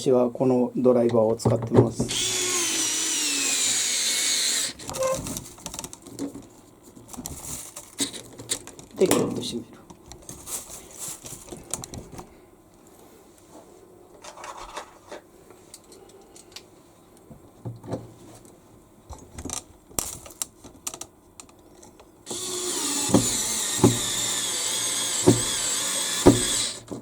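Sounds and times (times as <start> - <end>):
cordless power driver whining: 2.1 - 5.1, 22.3 - 26.9.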